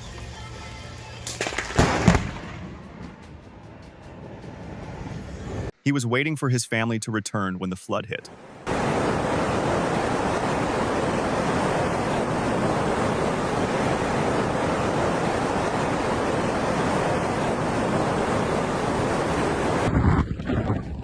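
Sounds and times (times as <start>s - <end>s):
floodwater rushing: 8.4s - 19.9s.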